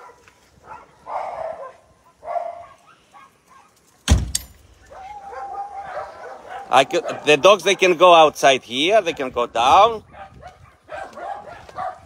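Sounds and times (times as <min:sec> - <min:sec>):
dogs barking: 0:00.0 - 0:03.8, 0:04.8 - 0:12.0
loud sudden thump: 0:04.1 - 0:04.5.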